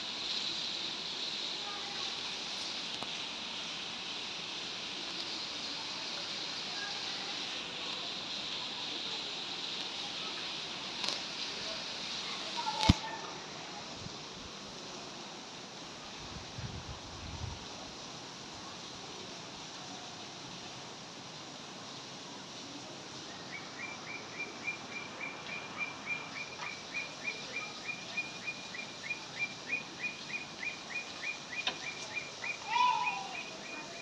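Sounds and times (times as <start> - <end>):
rain falling: 0.0 - 34.0
bird chirping: 23.3 - 34.0.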